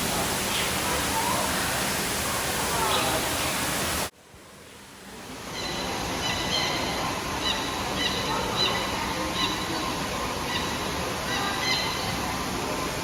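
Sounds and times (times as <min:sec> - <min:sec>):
birds chirping: 0:00.0 - 0:04.1.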